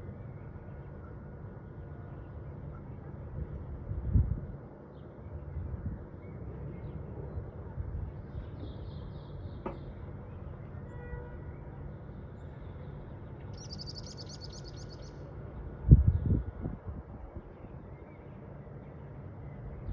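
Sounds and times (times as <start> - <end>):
songbirds chirping: 4.7 - 16.6.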